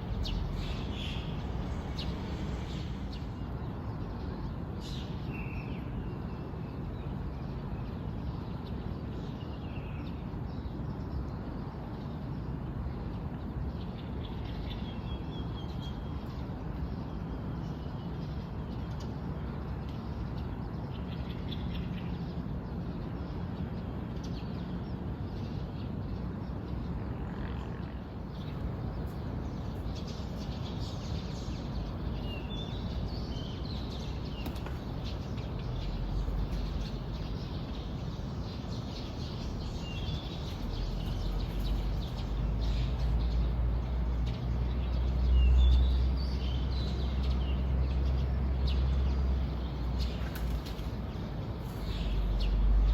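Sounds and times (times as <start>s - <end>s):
small birds chirping: 0.0s - 6.2s, 28.2s - 52.9s
low background noise: 0.0s - 52.9s.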